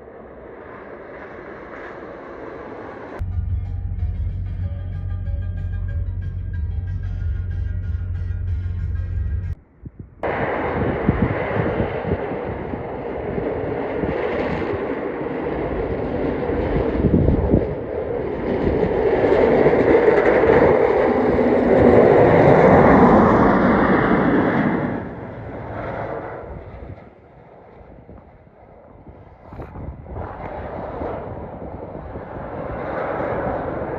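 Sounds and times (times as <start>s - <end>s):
truck passing on road: 2.7s - 9.6s.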